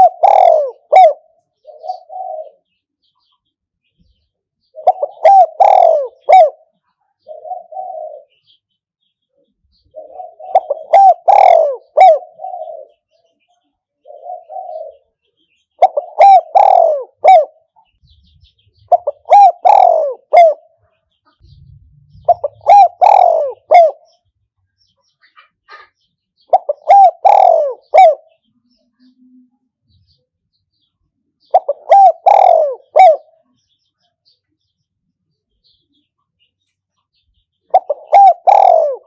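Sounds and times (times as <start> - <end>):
soft purring coo: 0.0 - 2.6, 4.8 - 6.6, 7.2 - 8.4, 9.9 - 13.0, 14.0 - 15.1, 15.8 - 17.5, 18.2 - 20.6, 21.4 - 24.0, 26.5 - 28.2, 31.5 - 33.3, 37.7 - 39.0
dove cooing: 0.0 - 2.7, 4.7 - 8.6, 9.7 - 13.1, 14.0 - 15.2, 15.8 - 24.2, 25.7 - 28.4, 31.4 - 33.5, 37.7 - 39.0.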